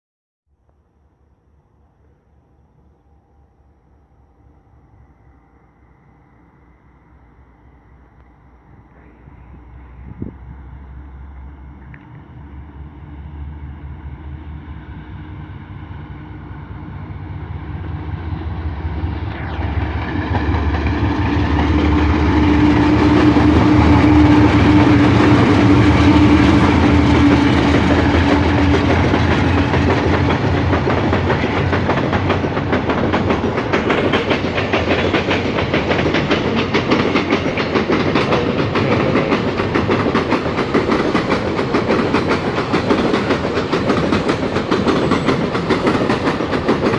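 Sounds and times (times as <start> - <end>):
locomotive engines droning: 0.7 - 46.9
train wheels clickety-clack: 20.3 - 46.9.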